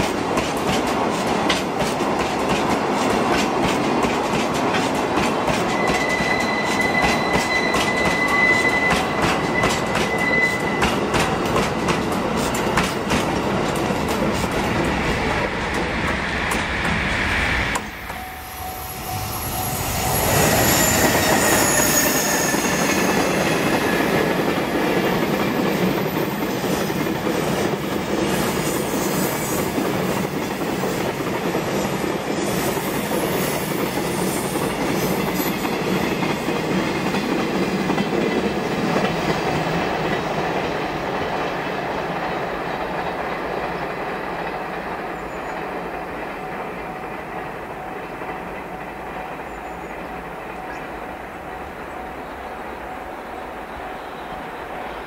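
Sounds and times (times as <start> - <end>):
freight train wheels clattering: 0.0 - 17.1, 19.1 - 50.8
wheel squeal: 5.7 - 11.0, 17.9 - 24.1
falling tones: 15.5 - 23.5.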